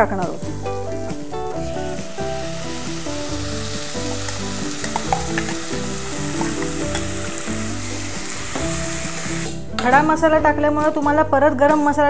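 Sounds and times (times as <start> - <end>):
onions sizzling in hot oil: 0.0 - 9.6
background music: 0.0 - 12.0
paste poured into pan: 0.6 - 9.6
sharp oil pops: 4.8 - 5.6.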